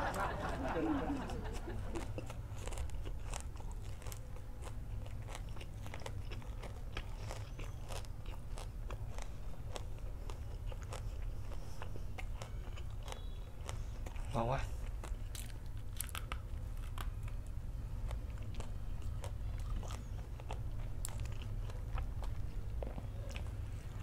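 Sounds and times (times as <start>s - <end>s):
crunchy chewing: 1.0s - 24.0s.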